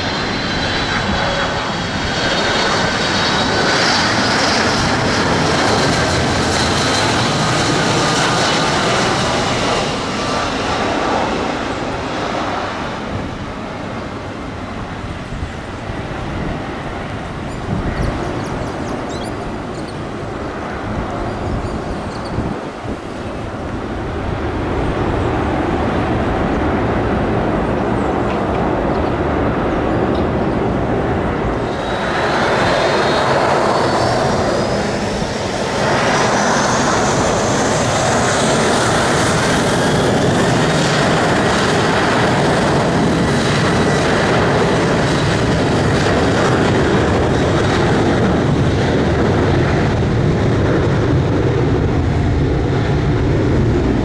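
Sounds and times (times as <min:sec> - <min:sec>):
aircraft engines rumbling: 0:00.0 - 0:54.0
rising engine whine: 0:23.6 - 0:42.1.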